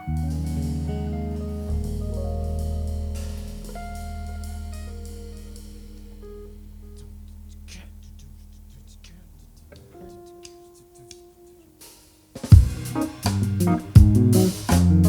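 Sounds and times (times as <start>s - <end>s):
live band chord ringing out: 0.0s - 8.5s.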